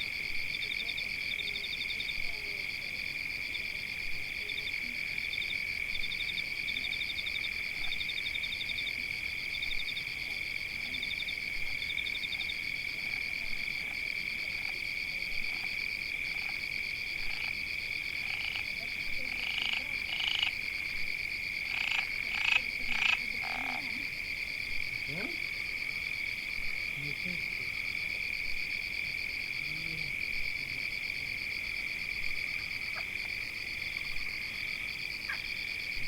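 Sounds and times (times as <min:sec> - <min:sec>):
frogs trilling: 0:10.9 - 0:36.0.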